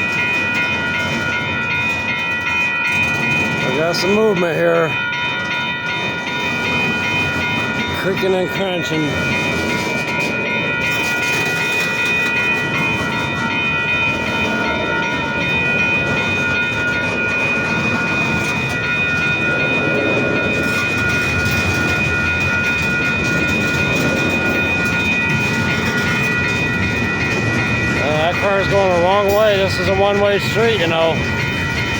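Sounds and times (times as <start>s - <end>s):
train cars creaking and crunching: 0.0s - 31.9s
train rumble: 0.0s - 31.9s.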